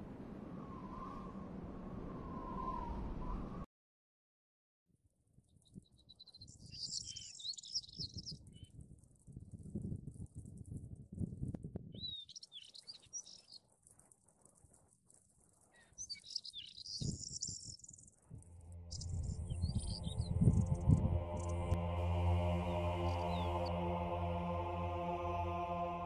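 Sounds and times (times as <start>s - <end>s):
small birds chirping: 5.5s - 8.8s, 11.9s - 21.7s, 22.6s - 23.7s
low rumble: 18.3s - 26.0s
music with steady drone: 18.4s - 26.0s.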